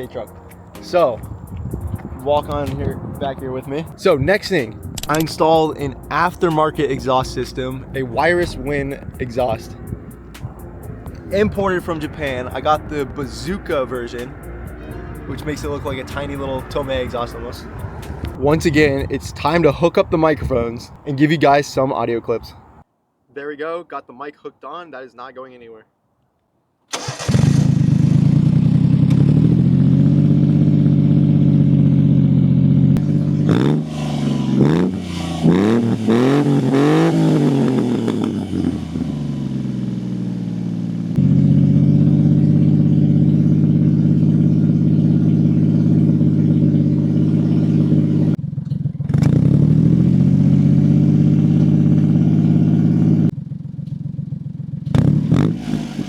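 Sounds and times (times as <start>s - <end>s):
small truck engine running and revving: 27.0s - 56.0s.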